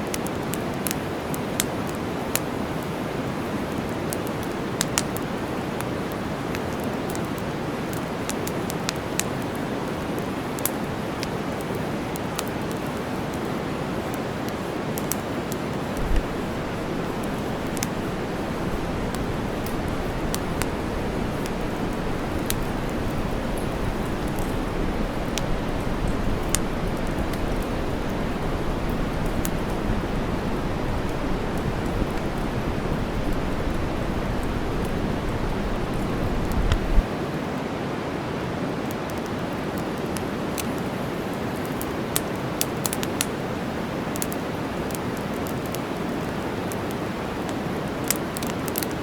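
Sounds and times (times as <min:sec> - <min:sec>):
campfire crackling and popping: 0:00.0 - 0:37.4, 0:38.8 - 0:49.0
white noise hiss: 0:00.0 - 0:49.0
deep white noise: 0:15.5 - 0:37.1.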